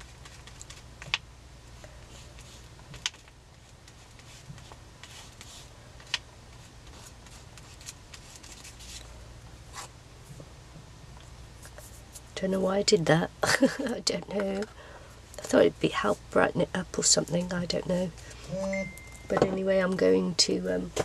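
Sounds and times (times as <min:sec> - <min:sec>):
scratchy paper rustling: 0:00.0 - 0:01.2, 0:01.8 - 0:09.9, 0:11.6 - 0:12.4.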